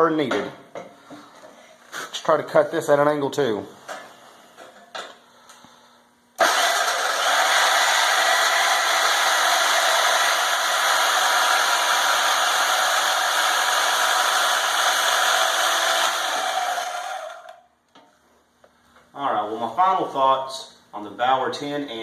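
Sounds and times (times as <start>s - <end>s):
band saw cutting steel: 6.4s - 17.5s.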